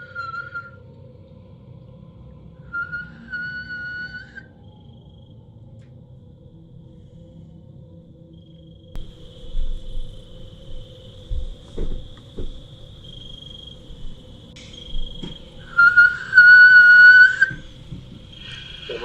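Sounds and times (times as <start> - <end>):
long steady whistle: 0.0 - 0.9, 2.6 - 5.0, 9.0 - 19.0
crickets trilling: 0.0 - 19.0.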